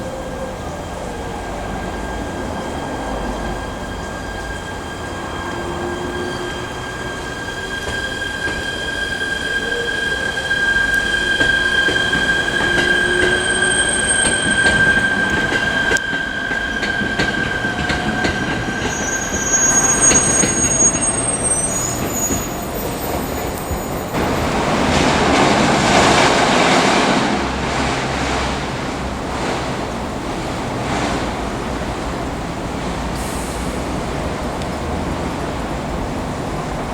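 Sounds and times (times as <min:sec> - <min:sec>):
railcar wheels squealing on track: 0:00.0 - 0:35.6
rolling rumble of railcars: 0:00.0 - 0:36.9.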